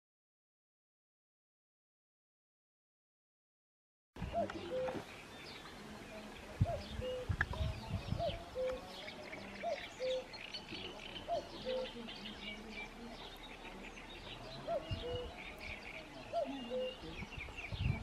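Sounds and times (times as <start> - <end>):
small birds chirping: 4.2 - 18.0.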